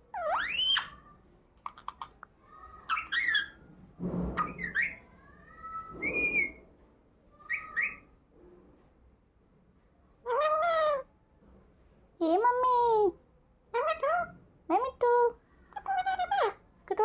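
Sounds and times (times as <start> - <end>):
parrot whistling and calling: 0.1 - 1.0, 2.8 - 3.6, 4.4 - 5.1, 6.0 - 6.6, 7.4 - 8.1.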